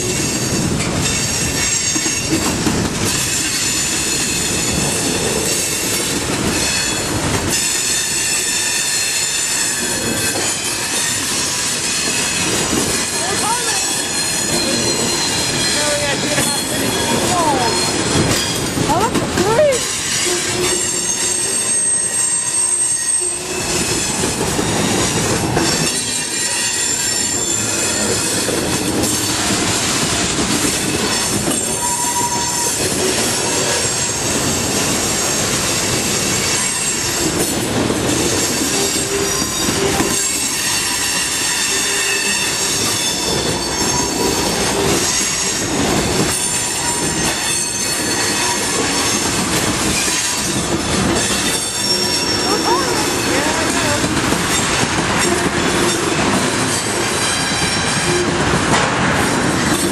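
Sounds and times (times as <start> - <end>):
train wheels on rails: 0.0 - 59.9
high-pitched wheel squeal: 13.0 - 18.6, 19.8 - 24.2, 31.0 - 34.1, 38.6 - 45.6, 46.3 - 49.3, 51.2 - 53.3.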